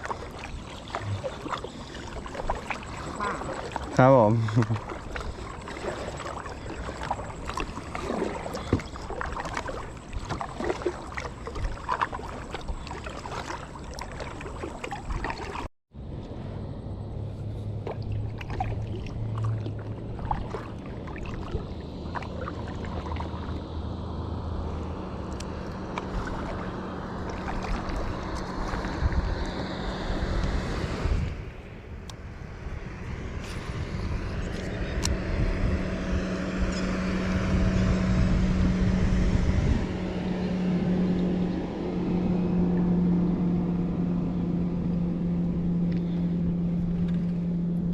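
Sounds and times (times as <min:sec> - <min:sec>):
paddle splashing in water: 0:00.0 - 0:15.7, 0:17.5 - 0:23.7, 0:25.3 - 0:31.0
steady low hum: 0:00.0 - 0:47.9.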